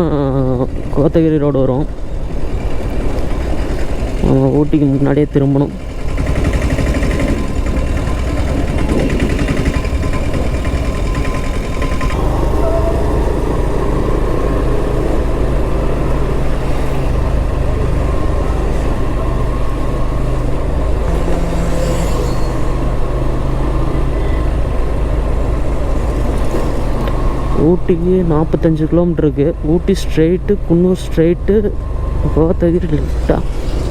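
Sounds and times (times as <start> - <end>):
motorcycle engine running: 0.0 - 33.9
wind noise on microphone: 7.1 - 17.5.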